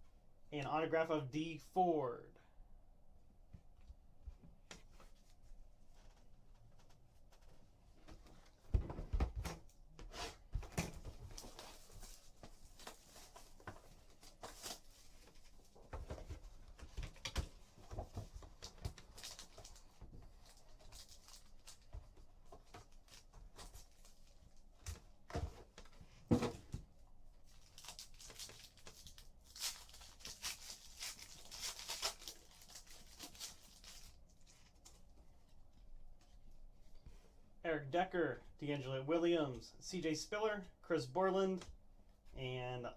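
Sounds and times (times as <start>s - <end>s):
wrappers crinkling: 18.5s - 22.2s, 27.4s - 34.8s
card packs tearing open: 27.6s - 34.2s.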